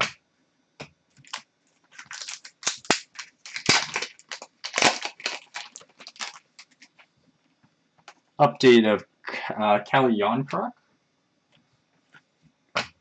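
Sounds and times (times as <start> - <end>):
card wrappers crinkling: 1.2 - 7.0.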